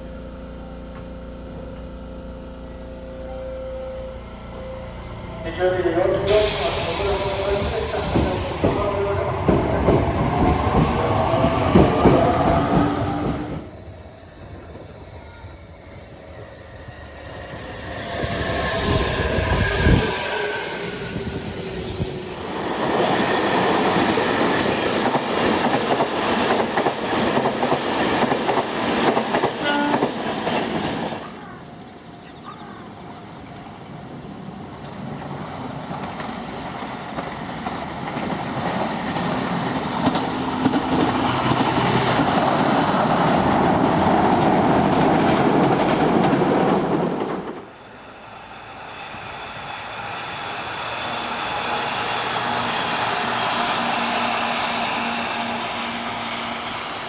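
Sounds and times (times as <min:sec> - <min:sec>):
electric train motor whine: 0:00.0 - 0:22.8
train wheels clicking over rail joints: 0:06.3 - 0:13.7.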